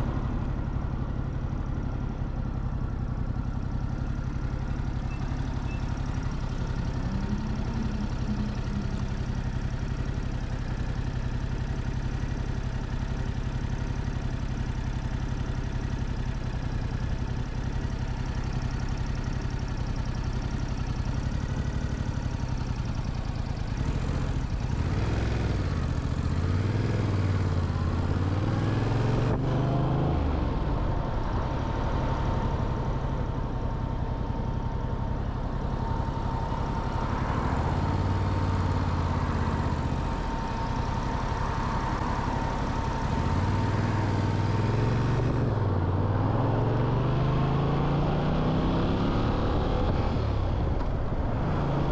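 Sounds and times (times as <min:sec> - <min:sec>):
motorcycle engine idling and revving: 0:00.0 - 0:51.9.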